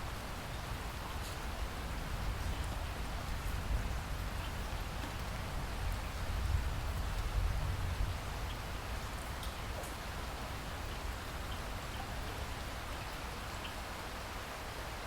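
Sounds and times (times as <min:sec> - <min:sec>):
steady rainfall hiss: 0:00.0 - 0:15.0.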